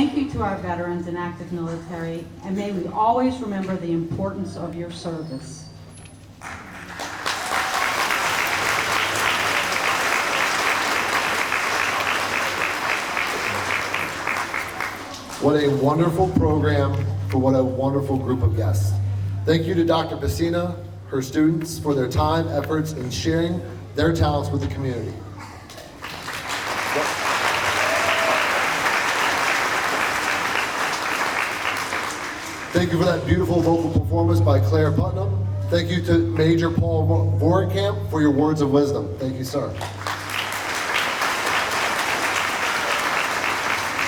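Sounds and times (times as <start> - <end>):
audience applauding: 6.4 - 15.9, 25.7 - 33.1, 39.8 - 44.0.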